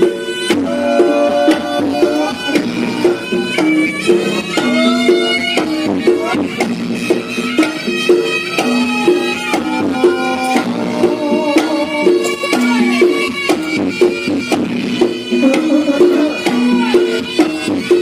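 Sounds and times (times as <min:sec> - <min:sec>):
hand drum strokes: 0:00.0 - 0:18.0
reedy wind instrument melody: 0:00.0 - 0:18.0
tuned gong tones: 0:08.1 - 0:13.3.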